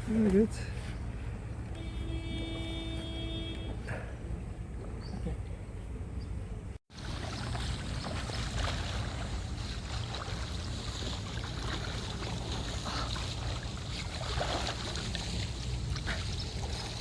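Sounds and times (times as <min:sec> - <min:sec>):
pool water sloshing and splashing: 0:06.9 - 0:17.0.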